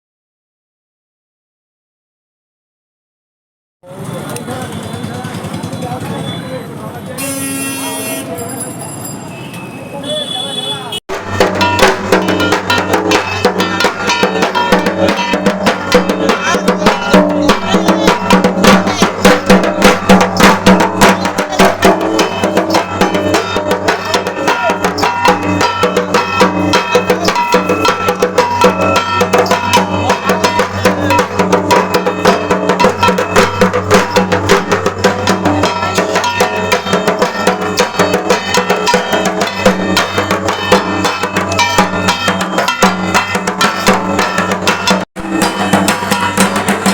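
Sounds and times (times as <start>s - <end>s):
fast continuous drumming: 11.1s - 46.9s.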